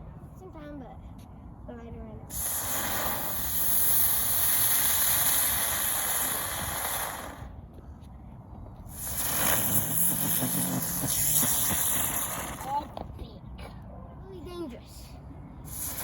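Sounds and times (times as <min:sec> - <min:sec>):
fireworks high-pitched hiss: 0:02.3 - 0:07.6, 0:08.9 - 0:13.0, 0:15.7 - 0:16.0.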